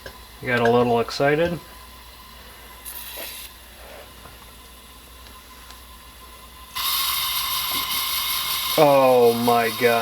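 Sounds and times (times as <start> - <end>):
camping stove burner hissing: 0.0 - 10.0.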